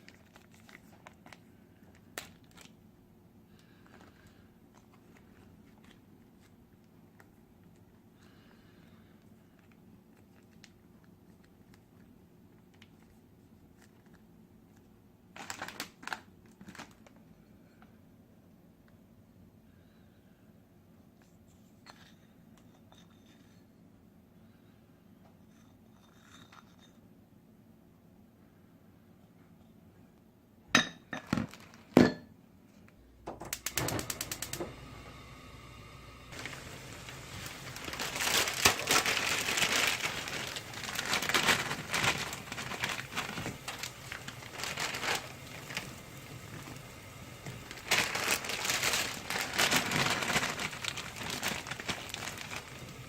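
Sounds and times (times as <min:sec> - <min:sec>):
crinkling and rustling: 0:00.0 - 0:02.9, 0:03.5 - 0:08.5, 0:09.1 - 0:18.0, 0:31.2 - 0:32.0, 0:32.7 - 0:53.0.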